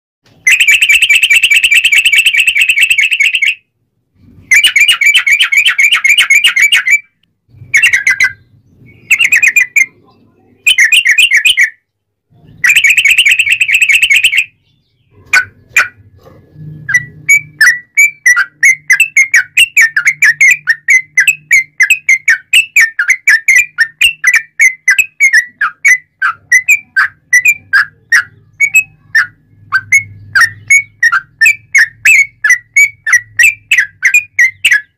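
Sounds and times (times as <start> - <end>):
bird singing trilled phrases: 0.4 - 34.9
bird whistled notes: 10.7 - 11.8.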